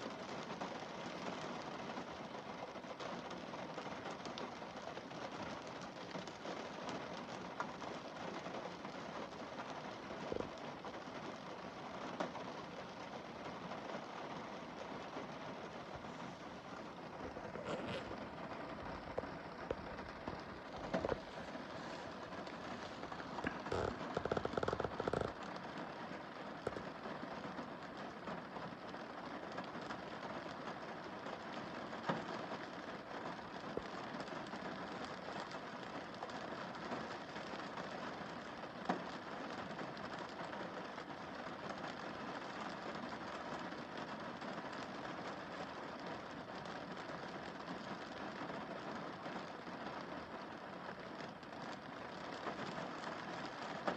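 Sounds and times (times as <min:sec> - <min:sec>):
heavy rapid rain pattering: 0:00.0 - 0:53.9
rain on a car windscreen: 0:00.0 - 0:53.9.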